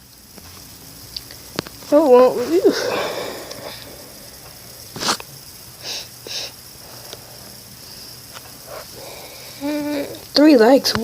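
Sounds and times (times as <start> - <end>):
person sniffing: 2.7 - 5.2, 5.8 - 10.2.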